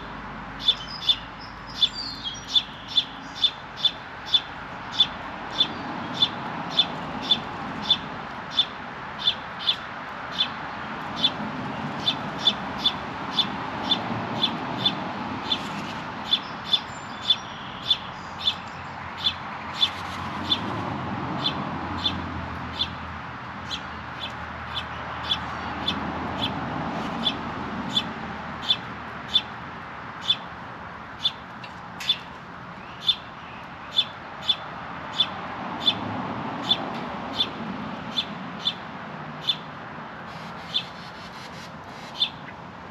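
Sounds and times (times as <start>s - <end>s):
small bird chirping: 0.6s - 10.5s, 12.0s - 20.7s.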